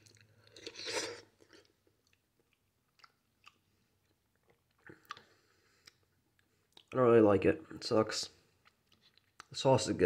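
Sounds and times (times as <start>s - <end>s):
person chewing soft food: 0.0s - 7.0s, 8.5s - 9.5s.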